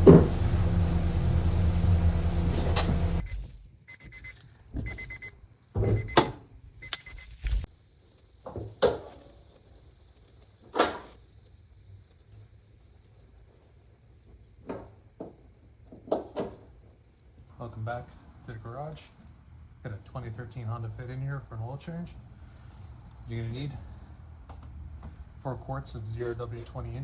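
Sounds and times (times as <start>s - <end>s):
sharp clunks and knocks: 0.0s - 3.2s
faint intermittent beeping: 0.7s - 6.2s.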